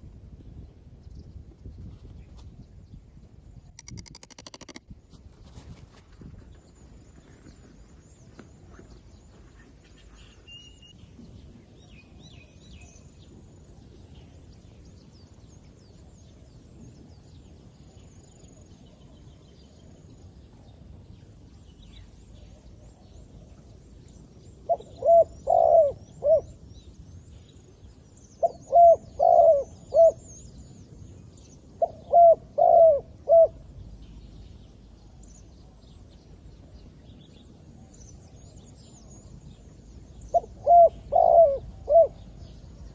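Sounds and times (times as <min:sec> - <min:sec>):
small birds chirping: 0:03.8 - 0:04.8
dove cooing: 0:24.7 - 0:26.6, 0:28.4 - 0:30.2, 0:31.8 - 0:33.6, 0:40.3 - 0:42.4.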